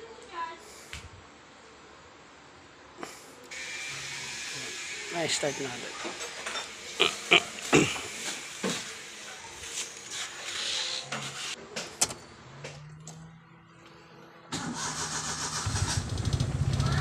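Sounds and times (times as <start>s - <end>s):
car engine starting and running: 14.5s - 17.0s.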